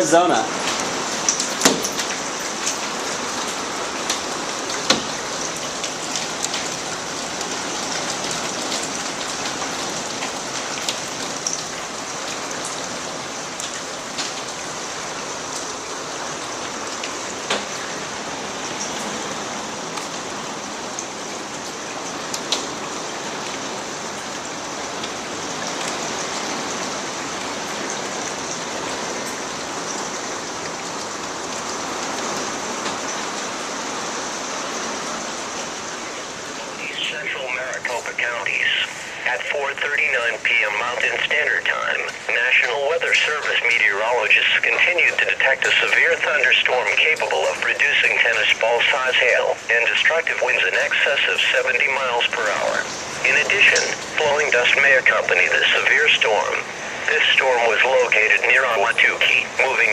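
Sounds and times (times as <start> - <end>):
heavy rain on glass roof: 0.0 - 59.9
hailstones striking glass: 1.3 - 2.2.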